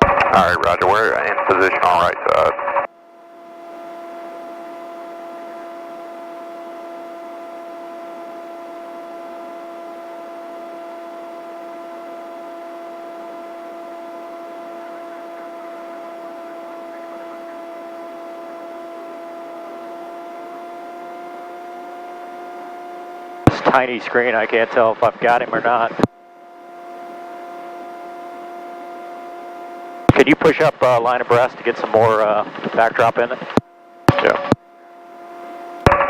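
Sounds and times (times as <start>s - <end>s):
helicopter hum through intercom: 0.0s - 2.9s, 3.5s - 22.0s, 23.5s - 36.0s
intercom hiss: 0.0s - 2.9s, 23.5s - 26.1s, 30.1s - 34.6s.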